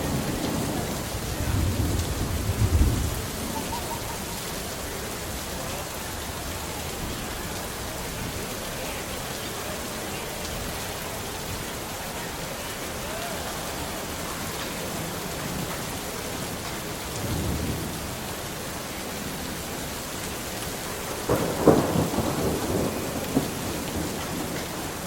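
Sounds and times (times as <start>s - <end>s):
low rumble of thunder: 0.0s - 4.5s, 16.4s - 18.5s, 21.1s - 25.0s
rain on hard surfaces: 0.0s - 25.0s.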